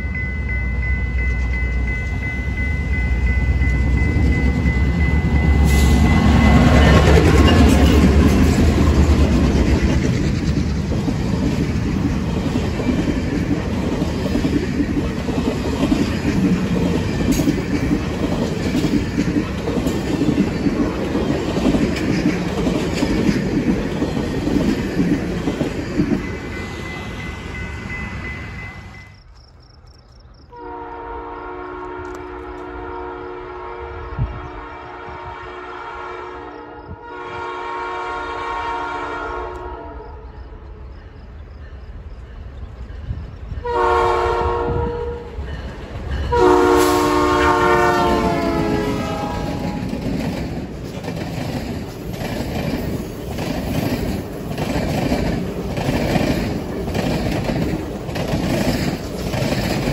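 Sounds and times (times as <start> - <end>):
diesel locomotives rumbling: 0.0 - 59.9
train horn: 5.2 - 8.3, 30.5 - 40.6, 43.6 - 45.4, 46.3 - 50.0
train cars clattering over rail joints: 45.4 - 59.9.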